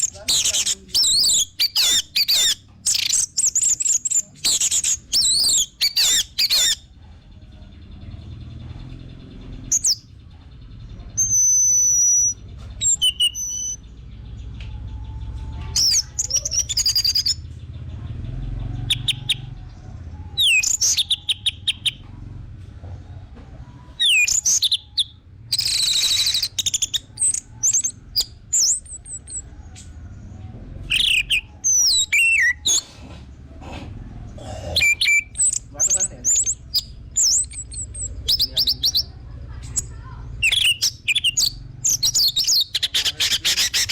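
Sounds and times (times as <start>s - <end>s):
thrush singing whistled phrases: 11.2s - 13.8s, 15.7s - 17.4s, 18.9s - 19.5s, 20.3s - 22.0s, 24.0s - 29.4s, 30.9s - 32.8s, 34.8s - 39.1s, 40.4s - 43.9s.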